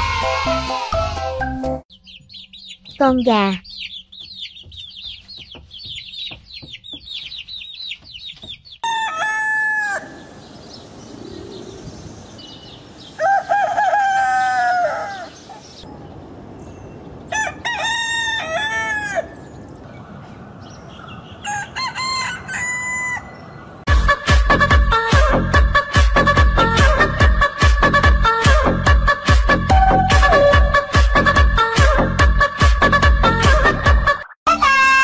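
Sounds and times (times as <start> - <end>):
chicks peeping: 1.9 - 9.4
rooster crowing: 8.8 - 11.8, 12.4 - 15.9, 17.2 - 19.6, 21.1 - 23.7.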